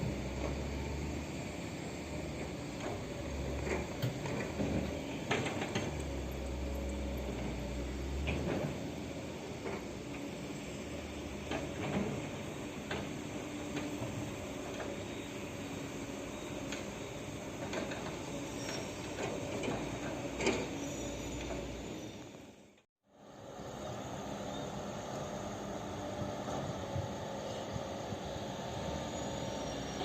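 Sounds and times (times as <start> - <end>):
dump truck engine running: 0.0 - 22.0.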